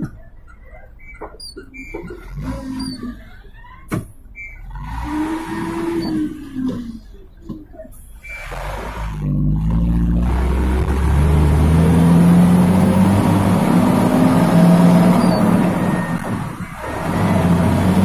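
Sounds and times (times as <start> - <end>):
diesel truck engine revving: 4.4 - 18.0.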